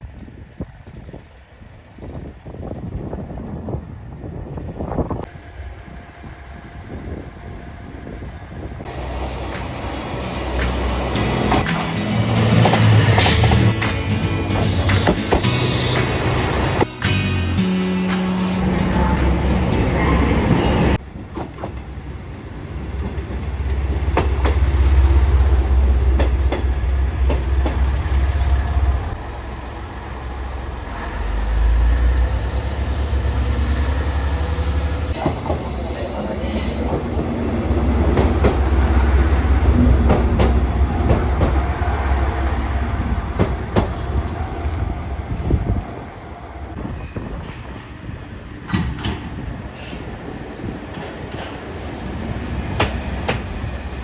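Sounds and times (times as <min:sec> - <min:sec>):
diesel railcar rumble: 0:00.0 - 0:54.0
wheels clicking over rail joints: 0:21.2 - 0:29.5
wheel squeal: 0:46.7 - 0:54.0.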